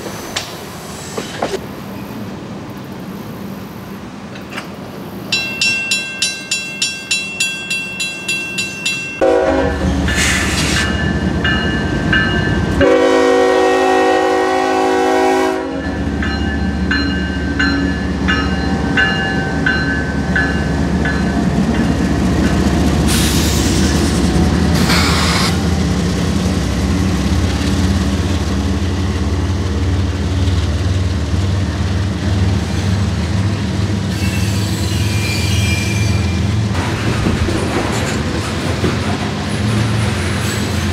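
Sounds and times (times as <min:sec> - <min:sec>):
freight train rumble: 0:00.0 - 0:40.9
crossing bell ringing: 0:05.3 - 0:10.2, 0:10.8 - 0:12.9, 0:15.6 - 0:22.6
locomotive horn: 0:09.2 - 0:10.3, 0:12.8 - 0:16.0.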